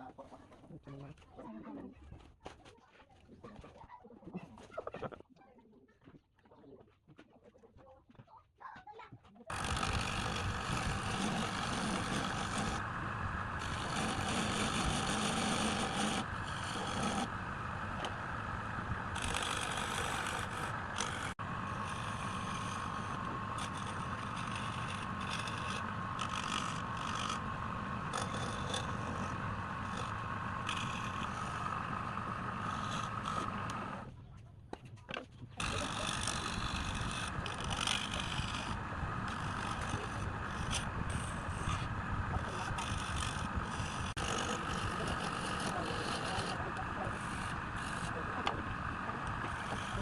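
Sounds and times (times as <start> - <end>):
power tool cutting wood: 9.5 - 34.1, 35.6 - 50.0.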